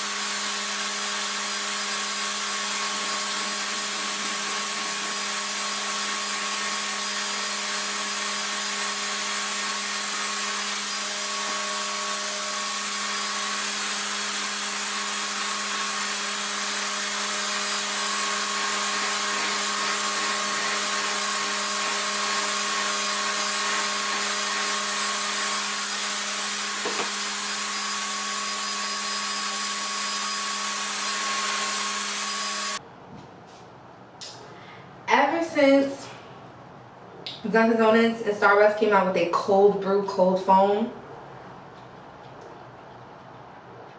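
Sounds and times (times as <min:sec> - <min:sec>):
hair dryer suction motor hum: 0:00.0 - 0:32.8.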